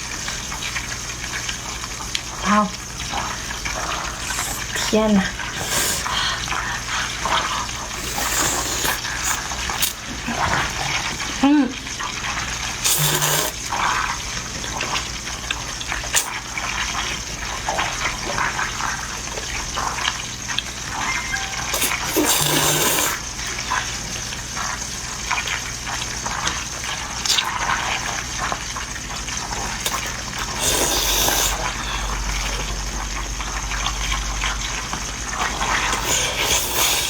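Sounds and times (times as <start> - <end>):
person slurping noodles: 3.9 - 10.0, 12.8 - 13.7, 21.5 - 23.2, 29.8 - 32.7, 35.8 - 37.0.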